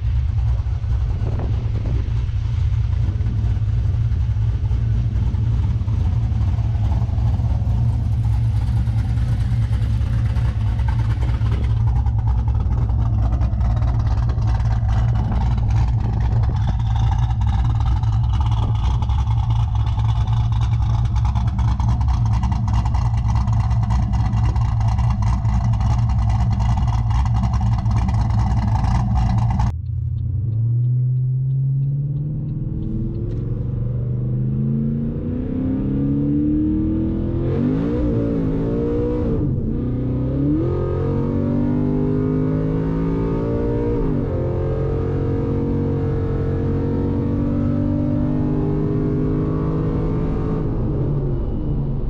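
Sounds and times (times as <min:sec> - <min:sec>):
car engine idling: 0:00.0 - 0:33.9
car engine accelerating through gears: 0:00.0 - 0:52.0.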